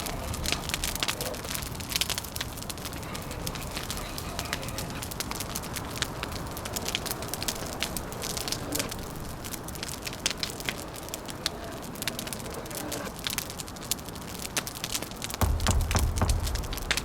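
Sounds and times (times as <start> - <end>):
wood fire crackling and popping: 0.0 - 17.0
low rushing background: 15.4 - 17.0.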